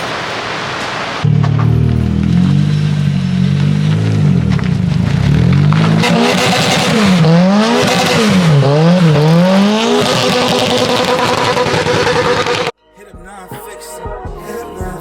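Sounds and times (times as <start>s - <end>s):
car engine revving: 1.2s - 12.8s.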